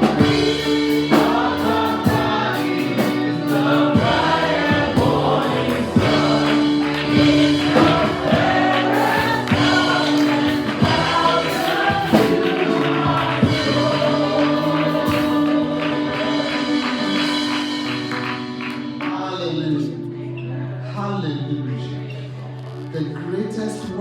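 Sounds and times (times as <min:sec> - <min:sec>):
band playing with steady beat: 0:00.0 - 0:19.2
choir and congregation singing: 0:00.0 - 0:24.0.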